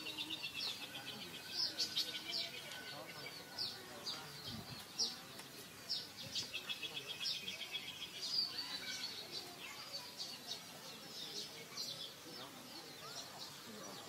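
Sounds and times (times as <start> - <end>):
bird trill: 0.0 - 4.1
small birds chirping: 0.0 - 14.0.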